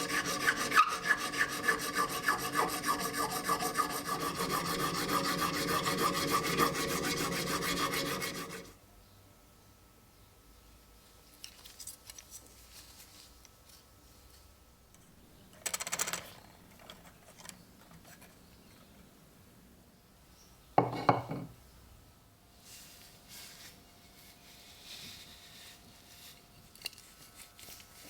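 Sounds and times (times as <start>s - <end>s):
filing strokes on metal: 0.0s - 8.7s.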